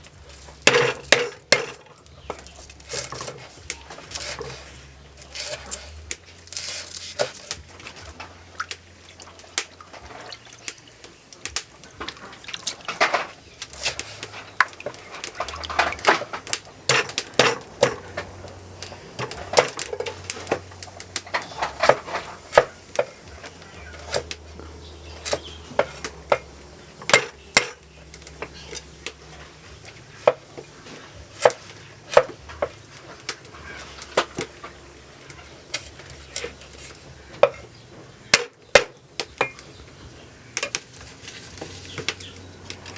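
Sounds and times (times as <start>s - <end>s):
utensils knocking on cookware: 0.5s - 4.6s, 12.0s - 37.7s, 38.3s - 39.8s.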